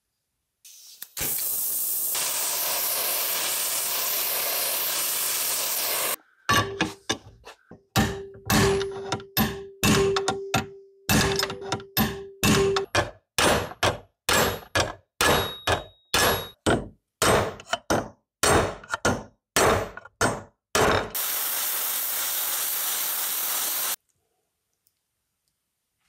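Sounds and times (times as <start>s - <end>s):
steady hiss: 0.6s - 6.2s, 21.2s - 24.0s
hammer striking metal: 6.5s - 7.3s, 7.9s - 21.2s.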